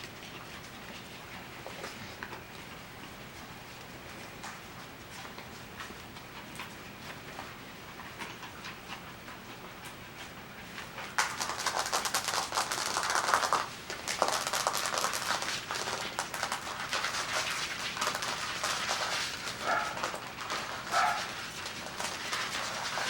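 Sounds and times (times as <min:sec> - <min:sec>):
paws scuffling and scratching: 0:00.0 - 0:23.0.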